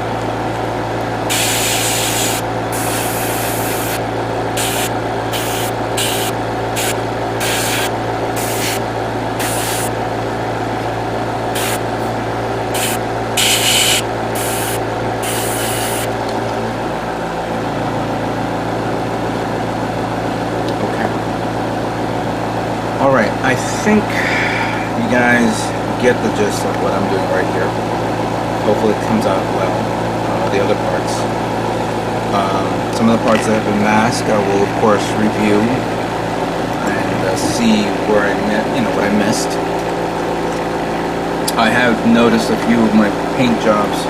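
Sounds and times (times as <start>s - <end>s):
motor hum: 0.0s - 44.0s
airbrush hissing bursts: 1.3s - 4.0s, 4.6s - 8.8s, 9.4s - 9.9s, 11.5s - 11.8s, 12.7s - 16.1s.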